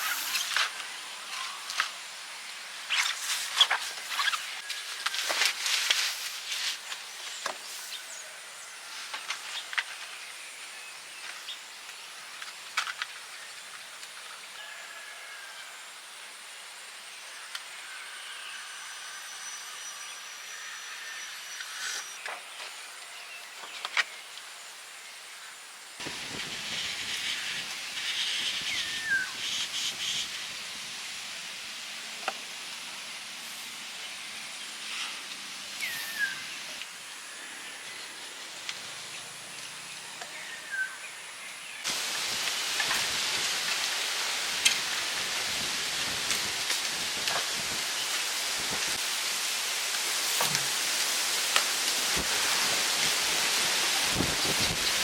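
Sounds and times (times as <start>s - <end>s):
rain falling: 41.8s - 55.0s.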